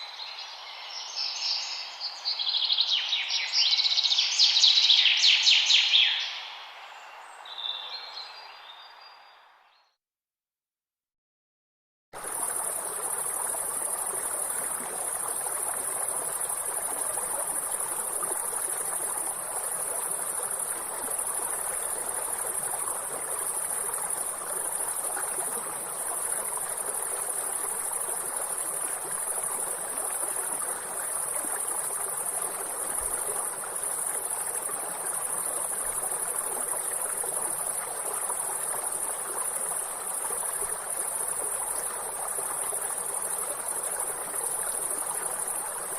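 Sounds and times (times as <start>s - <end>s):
insects chirping: 12.2s - 45.9s
stream flowing: 12.2s - 45.9s.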